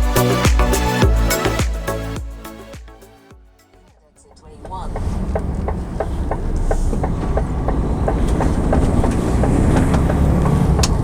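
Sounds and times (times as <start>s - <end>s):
lorry engine and road rumble: 4.2s - 11.0s.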